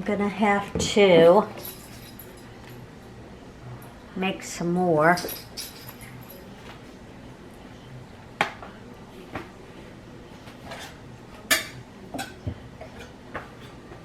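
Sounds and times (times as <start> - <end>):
dishes and utensils clinking: 0.8 - 2.8, 5.0 - 6.8, 10.4 - 14.0.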